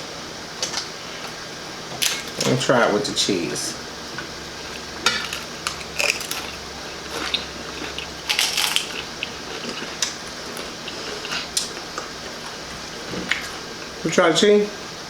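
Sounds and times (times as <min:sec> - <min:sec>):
crunching tortilla chips: 0:04.6 - 0:14.1.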